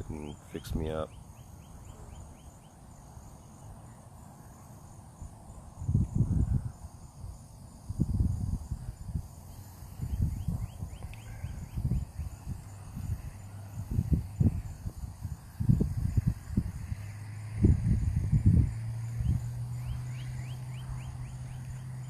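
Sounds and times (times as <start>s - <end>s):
insects chirping: 0.0s - 22.0s
wind gusts on microphone: 5.2s - 22.0s.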